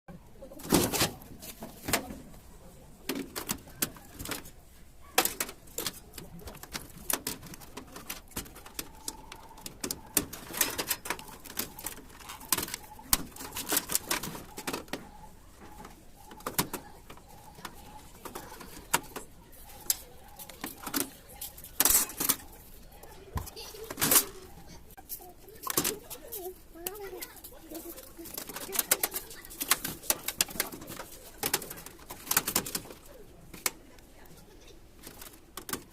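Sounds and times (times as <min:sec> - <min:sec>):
computer hardware clicking: 0:05.2 - 0:21.1.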